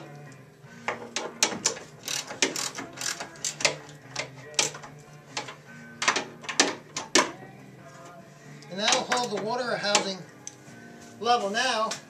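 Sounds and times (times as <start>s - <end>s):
wrench tightening screws clicking: 1.1s - 6.7s.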